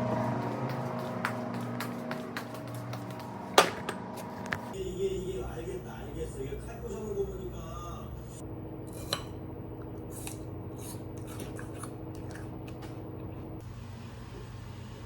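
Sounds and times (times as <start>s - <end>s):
steady low hum: 0.0s - 15.0s
kitchen utensils snipping and clicking: 8.9s - 13.0s.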